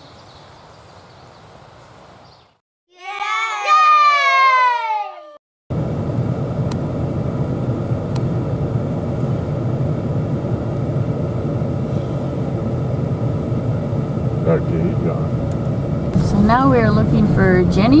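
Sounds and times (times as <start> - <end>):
truck driving rumble inside cab: 5.7 - 18.0.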